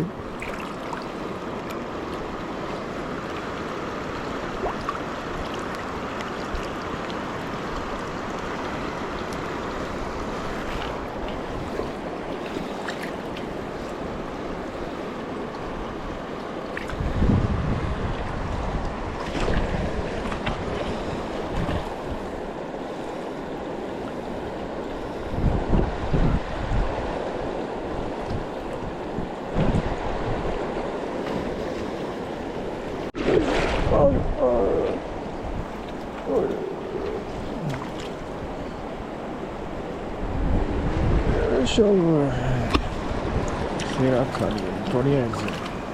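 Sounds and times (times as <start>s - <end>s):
fast river rushing: 0.0s - 45.9s
wind buffeting on microphone: 15.6s - 22.6s, 24.3s - 45.9s.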